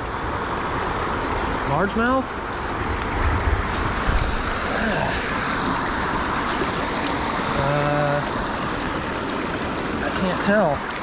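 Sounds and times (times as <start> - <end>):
steady rain: 0.0 - 11.0
wind buffeting microphone: 2.4 - 7.5.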